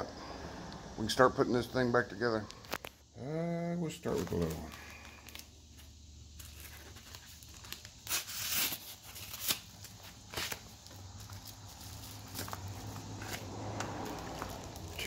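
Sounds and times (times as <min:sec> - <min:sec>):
package tearing and crinkling: 0:06.3 - 0:13.4.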